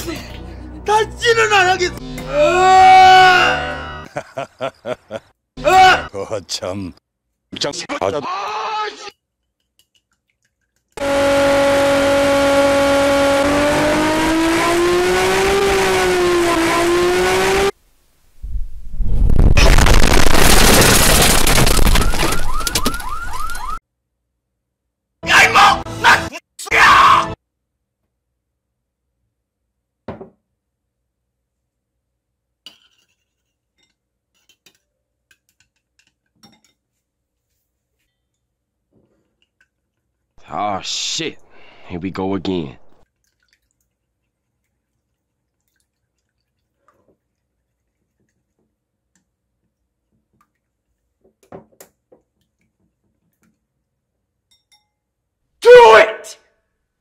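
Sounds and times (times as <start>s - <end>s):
egg squishing: 9.3s - 11.0s, 39.2s - 40.4s, 43.0s - 53.8s
chopsticks clicking against bowl: 9.4s - 11.0s
spoon clinking against bowl: 54.4s - 55.1s.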